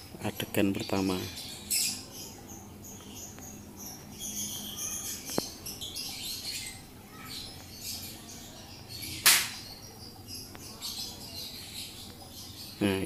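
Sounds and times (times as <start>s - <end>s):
small birds chirping: 0.0s - 13.0s
sharp click: 9.2s - 9.6s.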